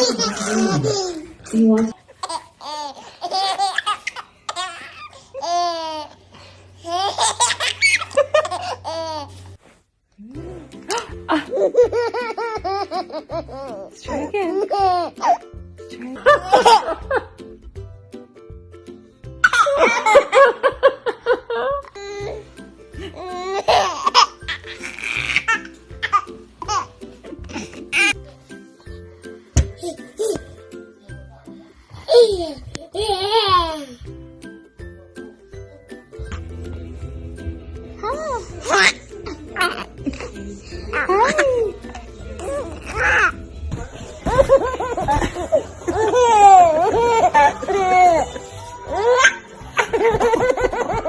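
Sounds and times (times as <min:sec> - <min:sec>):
baby laughing: 0:00.0 - 0:01.4, 0:02.1 - 0:06.2, 0:06.8 - 0:09.4, 0:23.1 - 0:28.2, 0:32.1 - 0:34.0, 0:38.0 - 0:40.3, 0:42.4 - 0:43.4, 0:44.2 - 0:51.0
background music: 0:00.0 - 0:51.0.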